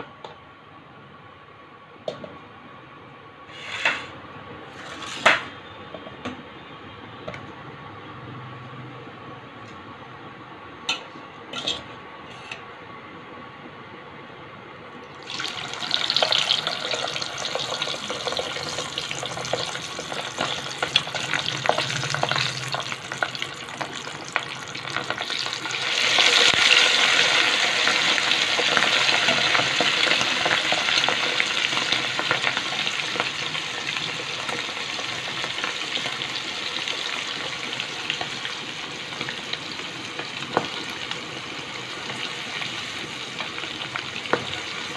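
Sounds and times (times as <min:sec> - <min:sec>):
prawns deep-frying in oil: 0:15.1 - 0:44.9.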